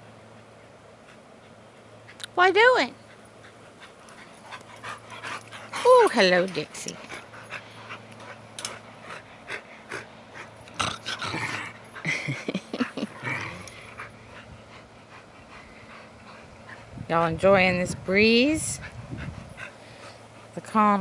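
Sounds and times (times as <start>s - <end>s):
dogs scuffling: 3.1s - 8.9s
dog vocal sounds: 3.8s - 16.9s.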